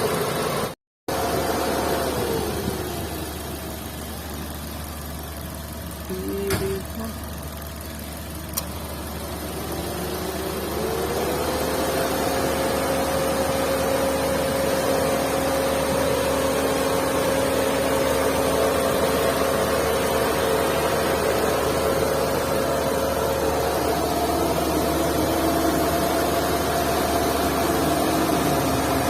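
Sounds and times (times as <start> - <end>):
car engine whine: 0.0 - 29.0
short click: 8.5 - 8.7.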